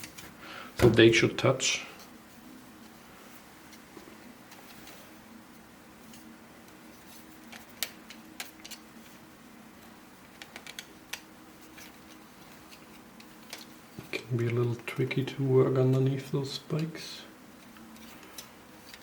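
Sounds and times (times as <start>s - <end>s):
faint steady hum: 0.0s - 19.0s
plastic puzzle pieces clicking: 10.3s - 11.2s.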